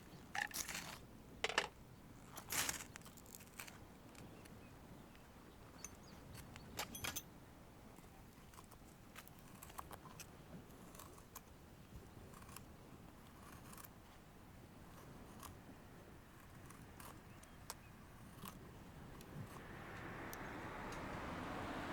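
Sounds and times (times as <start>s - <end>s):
small objects clicking and knocking: 0.4s - 1.8s.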